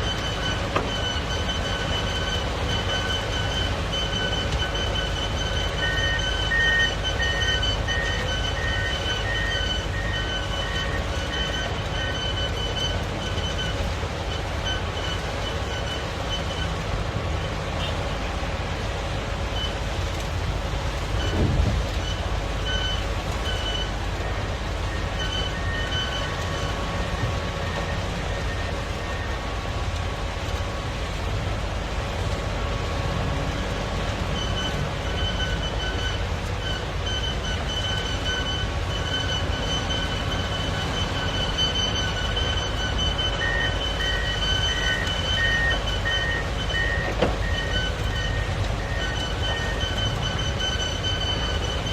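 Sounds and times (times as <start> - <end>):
backup alarm beeping: 0.0 - 16.7, 21.2 - 29.6, 34.3 - 51.9
diesel engine running: 0.0 - 51.9.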